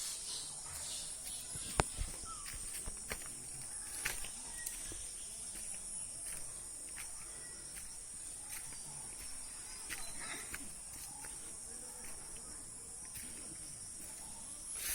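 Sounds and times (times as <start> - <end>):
insects chirring: 0.0 - 14.9
faint clicks and taps: 1.6 - 2.2.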